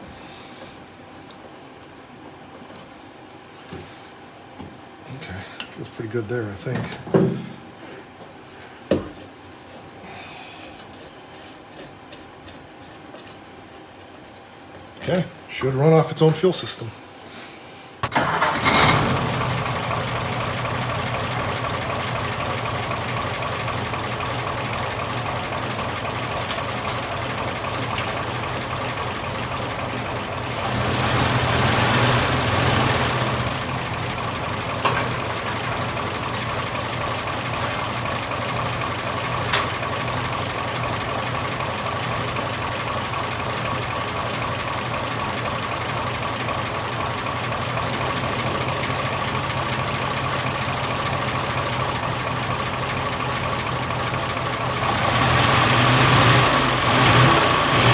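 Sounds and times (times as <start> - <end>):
car engine starting and idling: 18.0 - 57.9.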